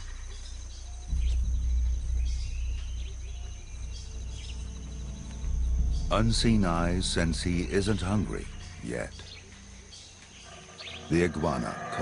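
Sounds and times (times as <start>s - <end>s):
low rumble: 0.0s - 8.8s
bird chirps: 0.0s - 12.0s
high insect buzz: 0.0s - 12.0s.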